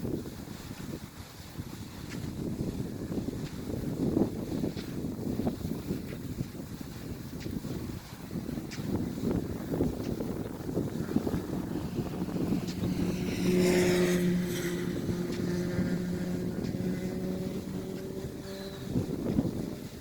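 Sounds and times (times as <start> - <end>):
steady engine hum: 8.5 - 20.0.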